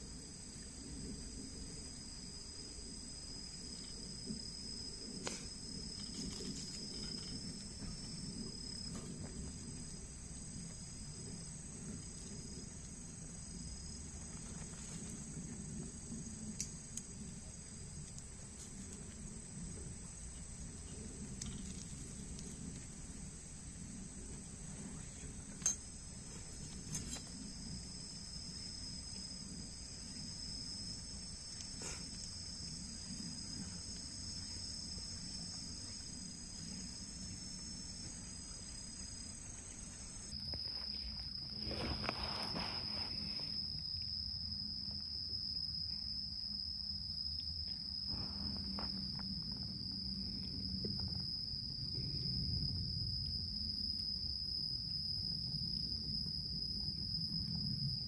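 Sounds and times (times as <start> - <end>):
insects chirring: 0.0 - 58.0
brief rustle: 40.6 - 43.6.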